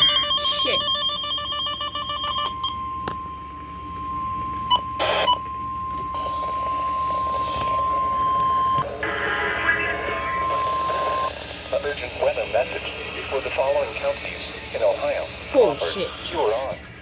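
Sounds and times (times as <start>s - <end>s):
warbling two-pitch beep: 0.0s - 11.3s
long steady alert tone: 0.0s - 12.4s.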